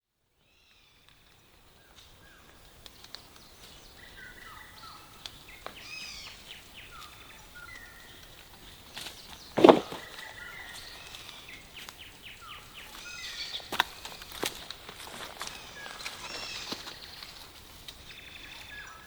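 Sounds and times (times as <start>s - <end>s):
birds whistling and chirping: 3.5s - 8.2s.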